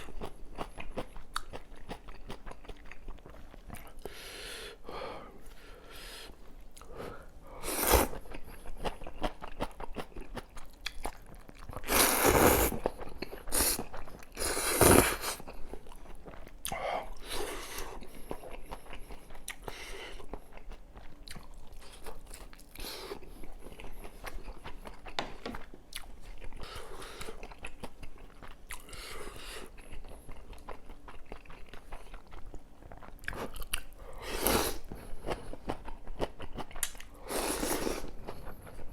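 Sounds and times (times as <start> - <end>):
person chewing and biting food: 0.0 - 4.1, 7.6 - 38.9.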